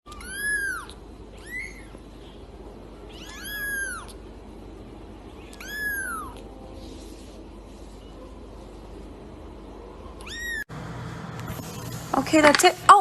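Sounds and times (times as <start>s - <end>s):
cat meowing: 0.1s - 2.0s, 3.1s - 4.2s, 5.4s - 6.4s, 10.2s - 10.7s.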